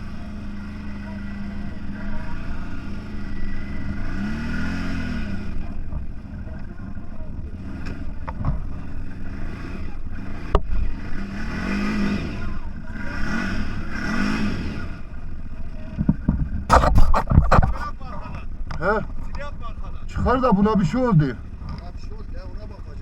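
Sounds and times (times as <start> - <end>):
off-road vehicle engine revving: 0.0 - 23.0
sharp knock: 16.7 - 17.9.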